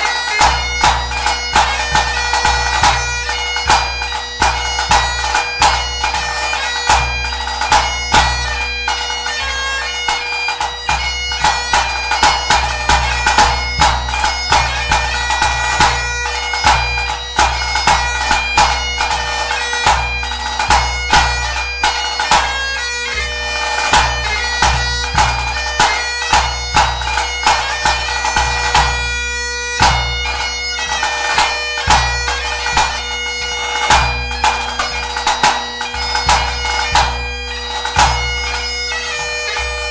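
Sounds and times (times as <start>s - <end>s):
bagpipe playing over drones: 0.0s - 39.9s.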